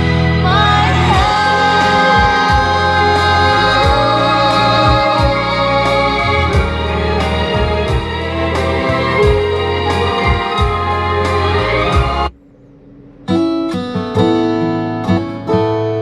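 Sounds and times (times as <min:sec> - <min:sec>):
pop ballad through car speakers: 0:00.0 - 0:12.4
deep bass notes: 0:00.0 - 0:15.4
sustained keyboard chords: 0:00.0 - 0:15.8
person singing: 0:00.4 - 0:07.1.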